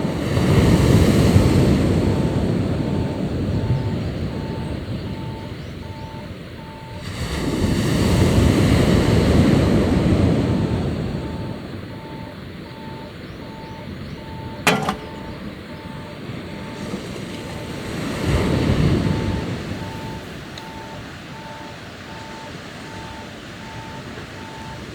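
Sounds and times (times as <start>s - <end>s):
sea waves washing onto shore: 0.0s - 11.7s, 16.1s - 24.9s
short high beeps: 11.2s - 16.8s.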